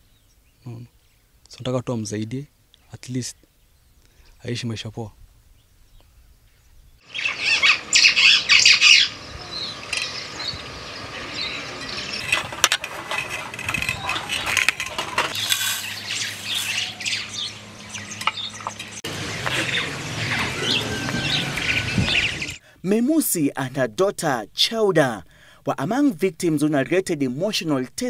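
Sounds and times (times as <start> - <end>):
birds chirping and squawking: 5.6 - 22.6.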